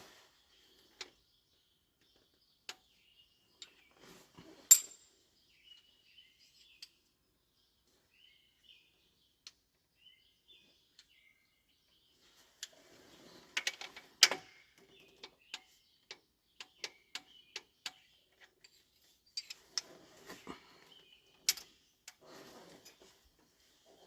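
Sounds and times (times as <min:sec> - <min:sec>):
faint bird chirps: 0:00.0 - 0:13.6
hand tools clinking on metal: 0:04.6 - 0:05.1.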